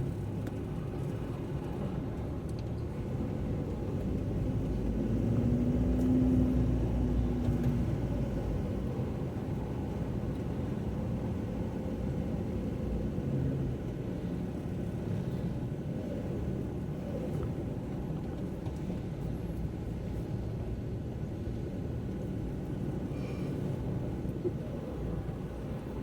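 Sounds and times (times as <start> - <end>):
car driving on wet road: 3.0 - 23.1.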